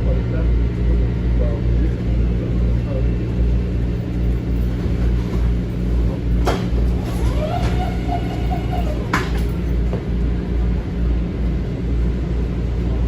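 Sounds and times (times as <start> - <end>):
electric train rumbling: 0.0 - 13.0
train doors clunking: 4.6 - 10.2.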